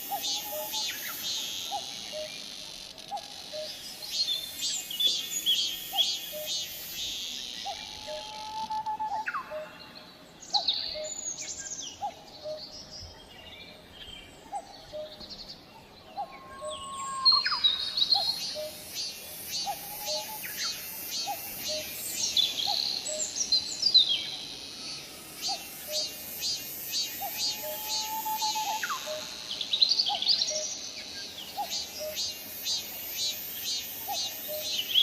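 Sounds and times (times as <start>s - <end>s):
cicada pulsing buzz: 0.0s - 12.9s, 16.2s - 35.0s
birds whistling: 19.6s - 24.5s, 25.4s - 32.8s.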